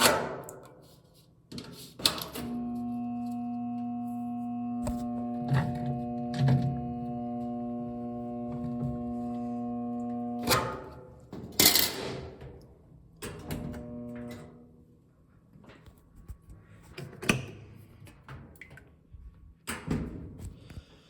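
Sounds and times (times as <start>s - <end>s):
brief electric hum: 2.2s - 11.0s, 13.6s - 14.6s.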